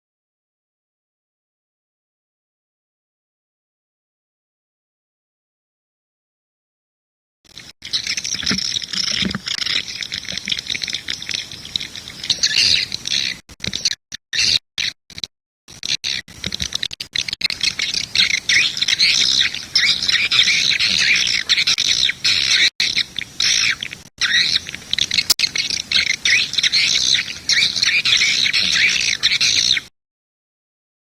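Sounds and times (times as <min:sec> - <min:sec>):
swiftlets chirping and twittering: 0:07.8 - 0:13.4, 0:17.1 - 0:29.9.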